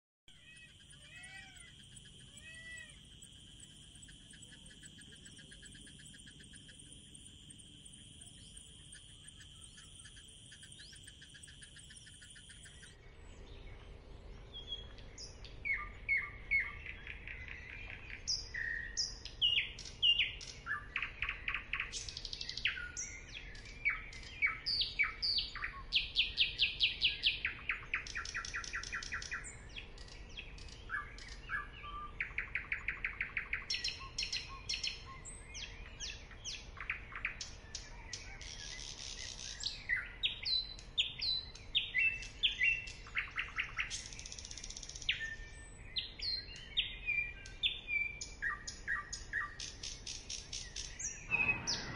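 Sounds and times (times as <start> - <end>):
faint steady hum: 0.3 - 37.9
birds singing and chirping: 0.3 - 51.9.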